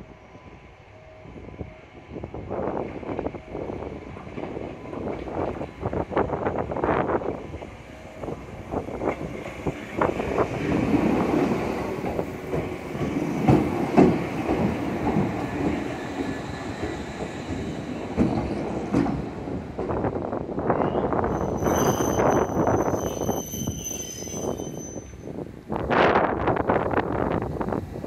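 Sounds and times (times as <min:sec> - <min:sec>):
train rumbling on track: 0:00.0 - 0:28.0.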